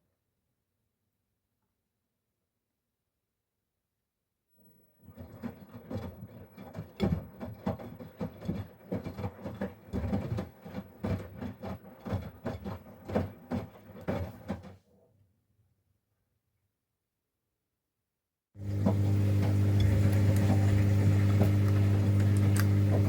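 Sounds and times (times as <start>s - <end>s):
washing machine motor hum: 5.0s - 14.7s, 18.6s - 23.0s
toys and water tumbling in drum: 5.0s - 14.8s, 18.6s - 23.0s.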